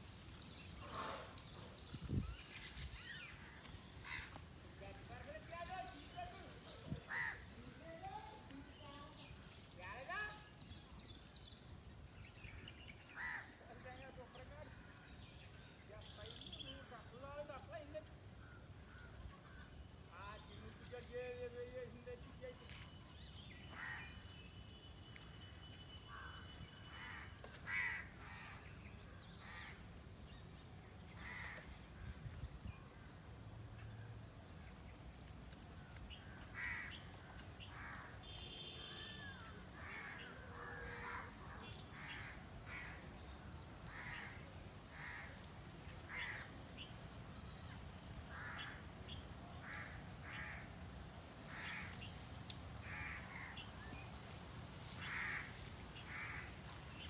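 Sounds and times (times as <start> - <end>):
birds calling: 5.2 - 17.8, 34.2 - 57.0.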